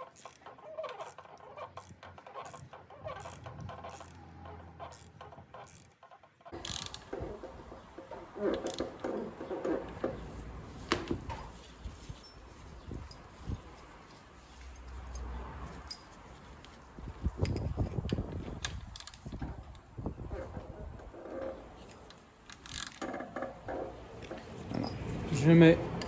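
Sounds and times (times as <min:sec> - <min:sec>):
ratchet wrench clicking: 0:06.6 - 0:07.0
metallic clinks of tools: 0:12.1 - 0:16.2.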